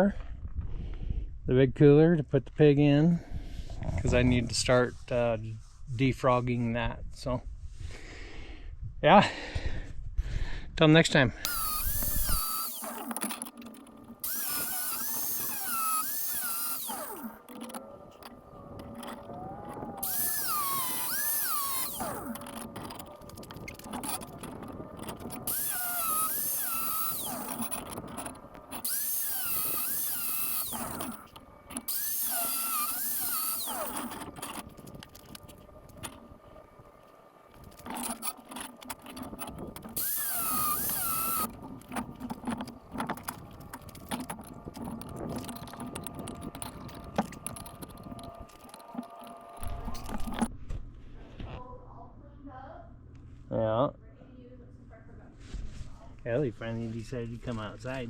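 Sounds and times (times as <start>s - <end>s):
angle grinder cutting steel: 11.4s - 50.5s.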